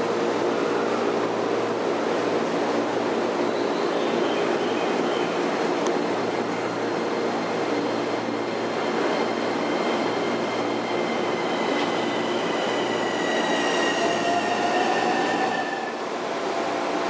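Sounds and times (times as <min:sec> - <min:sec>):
train rumble and hum: 0:00.0 - 0:17.0
high whining tones: 0:08.4 - 0:16.0.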